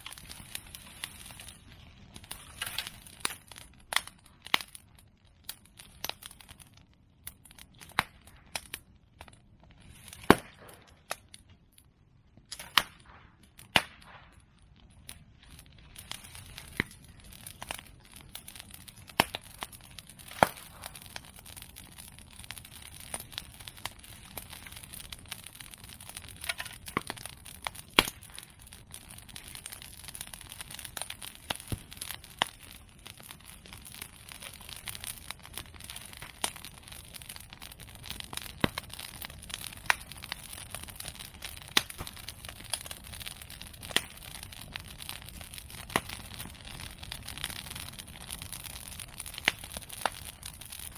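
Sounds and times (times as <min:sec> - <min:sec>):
bamboo bursting with loud cracks: 0:00.0 - 0:04.8, 0:09.8 - 0:11.3, 0:12.4 - 0:14.4, 0:18.7 - 0:21.9, 0:22.7 - 0:28.6, 0:30.7 - 0:44.9
bonfire crackling: 0:00.0 - 0:50.9.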